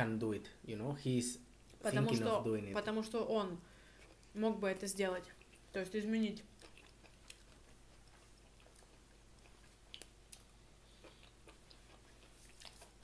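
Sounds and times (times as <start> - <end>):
low steady hum: 0.0 - 13.0
faint chewing: 3.6 - 13.0.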